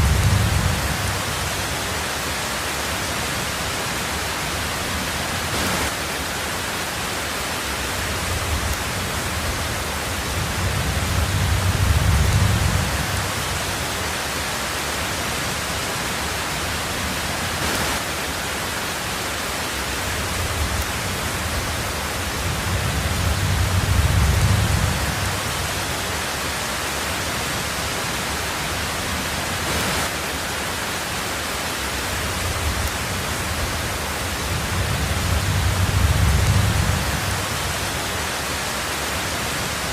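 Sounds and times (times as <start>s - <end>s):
low rumble of thunder: 0.0s - 1.8s, 8.2s - 13.9s, 20.2s - 26.1s, 32.1s - 38.1s
heavy rain on a tin roof: 0.0s - 39.9s.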